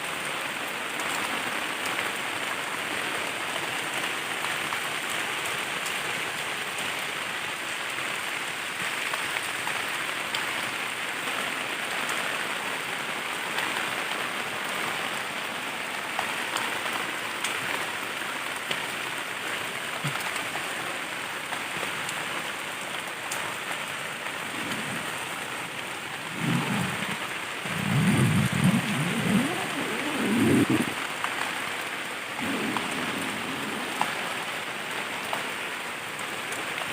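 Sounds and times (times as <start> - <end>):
heavy rain on a tent: 0.0 - 36.9
loud low rumble: 26.2 - 31.0.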